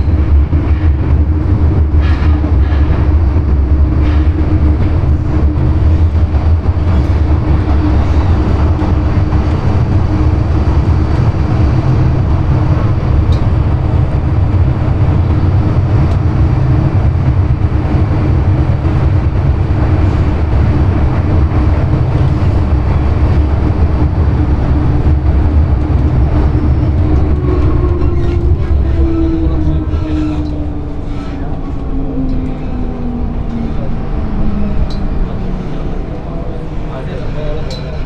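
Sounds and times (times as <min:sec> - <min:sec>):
steady train hum: 0:00.0 - 0:38.0
train wheels rumbling: 0:00.0 - 0:38.0.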